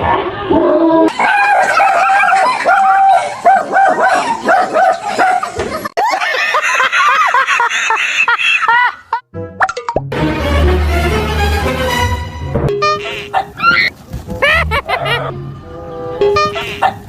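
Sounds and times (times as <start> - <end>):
dog barking and yipping: 1.1 - 5.6, 13.0 - 15.4, 16.3 - 17.0.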